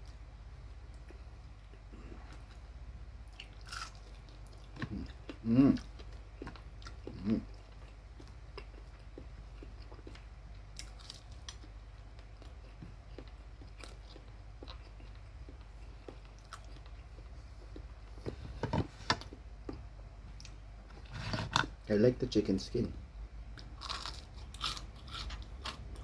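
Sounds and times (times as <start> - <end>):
low steady hum: 0.0 - 26.0
chewing crispy chicken skin: 3.3 - 17.9, 23.6 - 26.0.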